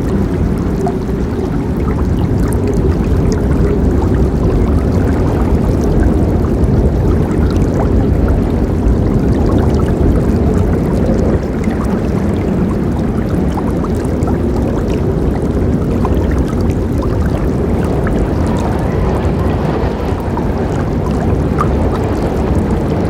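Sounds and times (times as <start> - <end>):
small water splashes: 0.0 - 23.0
river water rushing: 8.6 - 23.0.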